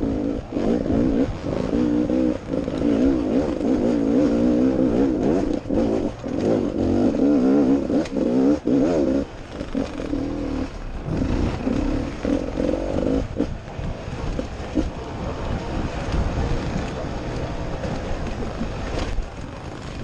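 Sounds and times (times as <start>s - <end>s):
dirt bike engine revving: 0.0s - 20.0s
bike clattering over rough ground: 9.2s - 20.0s.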